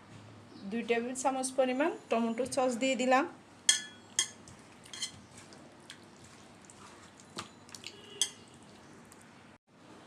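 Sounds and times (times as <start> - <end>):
utensil clinking against bowl: 3.7 - 5.2, 7.3 - 8.6
wet squishing: 4.4 - 9.4.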